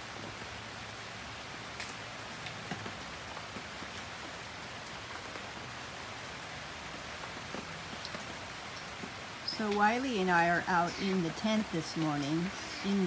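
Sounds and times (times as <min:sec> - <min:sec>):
rain on a fabric tent roof: 0:00.0 - 0:13.0
single louder raindrops: 0:07.2 - 0:13.0.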